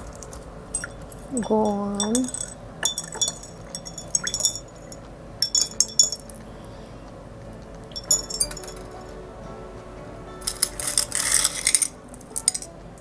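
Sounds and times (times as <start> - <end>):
marbles clinking into glass jars: 0.2 - 6.4, 7.9 - 9.1.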